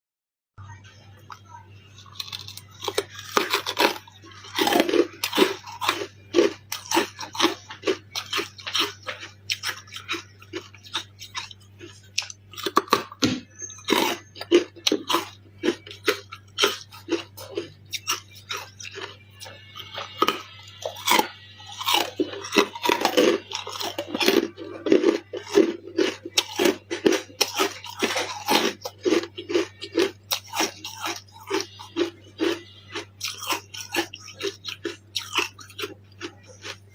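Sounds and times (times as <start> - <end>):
faint low hum: 0.6 - 36.9
chewing crunchy ice: 2.0 - 36.9.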